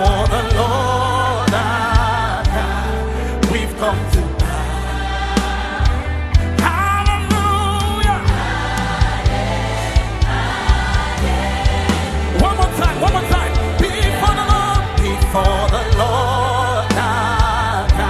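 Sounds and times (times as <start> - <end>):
choir singing: 0.0 - 18.0
steady bass: 0.0 - 18.0
drum beat: 8.0 - 18.0.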